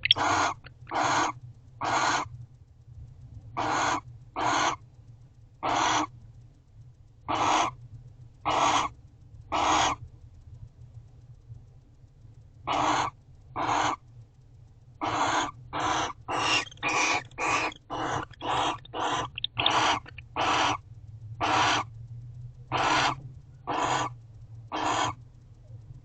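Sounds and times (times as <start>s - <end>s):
barn owl hissing: 0.0s - 2.3s, 3.6s - 4.8s, 5.6s - 6.1s, 7.3s - 7.8s, 8.5s - 8.9s, 9.5s - 10.0s, 12.7s - 14.0s, 15.0s - 20.8s, 21.4s - 21.9s, 22.7s - 25.2s
low electrical hum: 0.0s - 26.0s.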